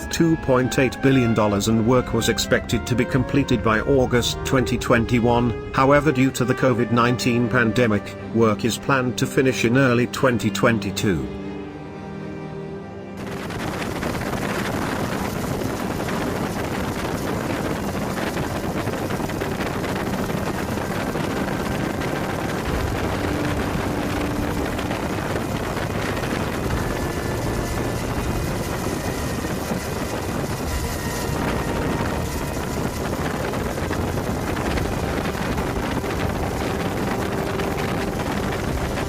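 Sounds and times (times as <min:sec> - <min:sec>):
machinery rumbling: 0:00.0 - 0:07.2, 0:11.1 - 0:39.0
wind on microphone: 0:13.2 - 0:39.0.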